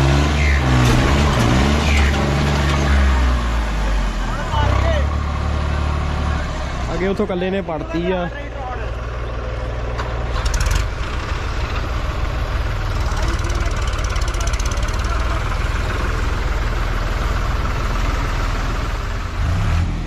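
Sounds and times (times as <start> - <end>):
diesel engine rumbling: 0.0 - 20.0.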